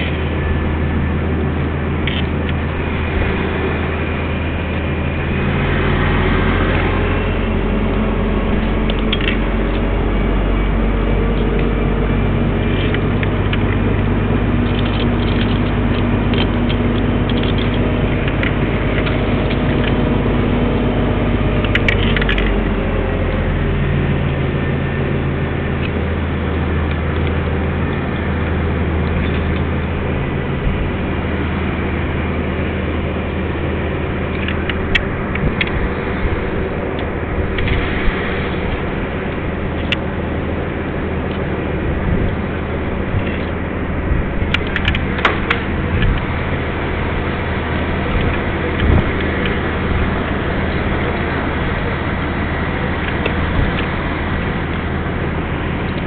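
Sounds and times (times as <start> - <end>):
diesel engine running: 0.0 - 56.0
mechanical clicks and clanks: 8.5 - 9.9, 14.6 - 20.1, 21.6 - 22.8, 44.3 - 46.3.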